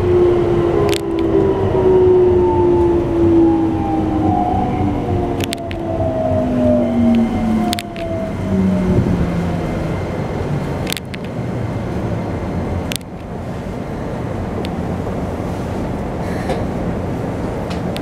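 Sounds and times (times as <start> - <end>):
train wheels rumbling on rail: 0.0 - 18.0
sharp clicks: 5.4 - 5.8, 10.8 - 11.4.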